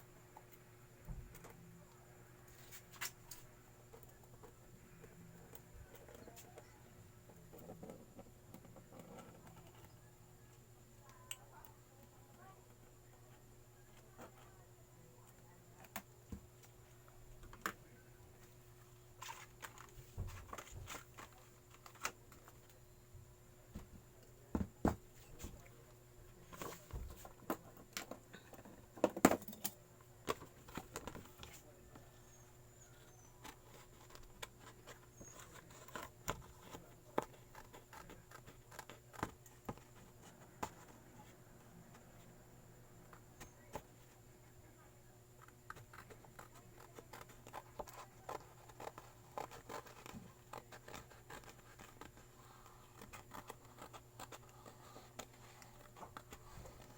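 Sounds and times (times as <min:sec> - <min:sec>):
faint steady hum: 0:00.0 - 0:56.9
paper rustling: 0:45.4 - 0:56.9.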